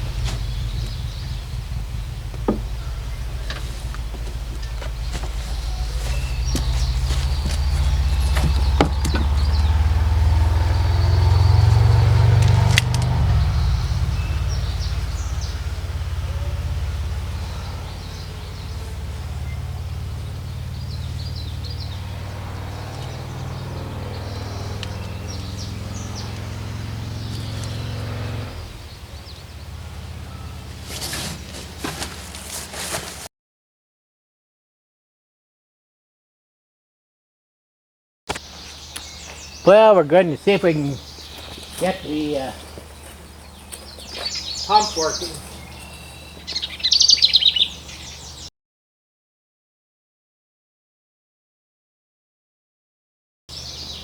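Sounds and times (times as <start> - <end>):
sharp knocks: 0.0 - 9.8
tractor engine running: 0.0 - 33.3, 38.3 - 48.5.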